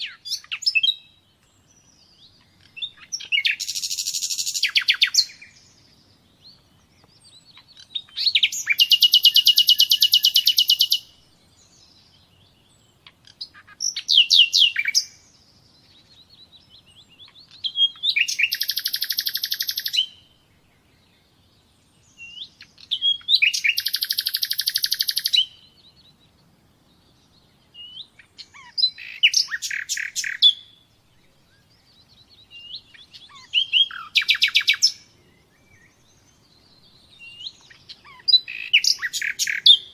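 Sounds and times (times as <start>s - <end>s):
songbird trilling: 0.0s - 20.4s, 21.0s - 26.4s, 27.0s - 39.9s
bird single chirps: 27.5s - 30.8s, 31.4s - 39.9s.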